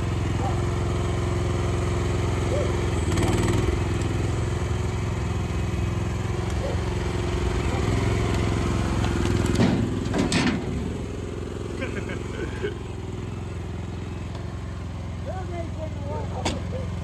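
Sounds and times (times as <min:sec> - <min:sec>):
excavator engine running: 0:00.0 - 0:17.0
short rattle: 0:09.1 - 0:11.2.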